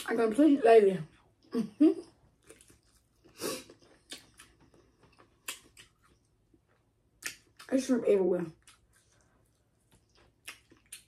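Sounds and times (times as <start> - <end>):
wet chewing smacks and clicks: 2.4 - 7.7, 8.6 - 11.0.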